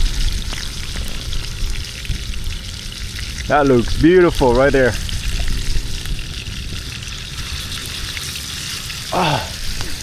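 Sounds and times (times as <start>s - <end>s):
steak sizzling in a pan: 0.0s - 10.0s
falling vocal sound: 9.1s - 9.6s.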